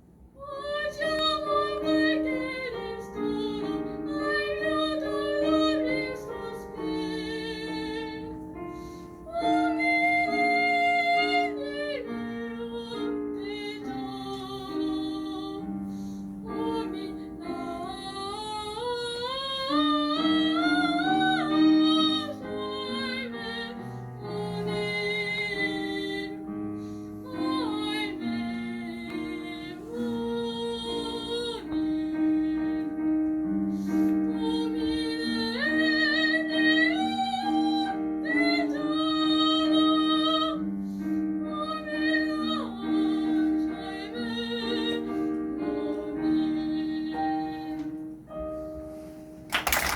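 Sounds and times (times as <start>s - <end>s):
piano accompaniment: 0.0s - 49.9s
soprano singing opera: 0.4s - 33.4s, 34.1s - 40.7s, 41.4s - 48.1s.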